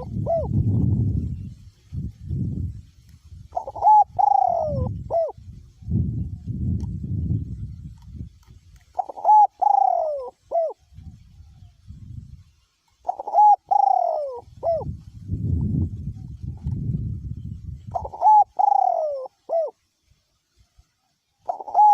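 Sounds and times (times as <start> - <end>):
dove cooing: 0.0 - 0.9, 3.5 - 5.4, 8.9 - 11.1, 13.0 - 15.0, 17.8 - 19.8, 21.4 - 21.9
wind rumbling on microphone: 0.0 - 21.9.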